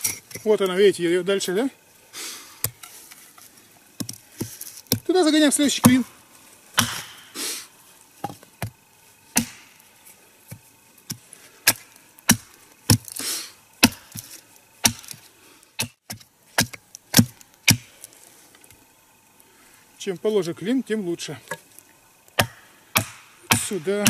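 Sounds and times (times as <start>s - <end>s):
hammer knocking wooden wedge: 22.4s - 23.8s.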